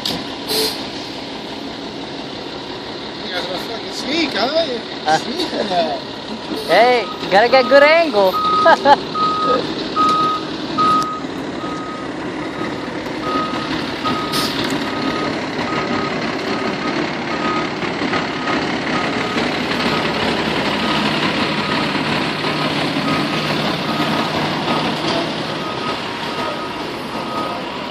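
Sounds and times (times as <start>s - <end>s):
fire engine running: 0.0s - 27.9s
reverse alarm beeping: 6.6s - 16.2s, 22.6s - 27.7s.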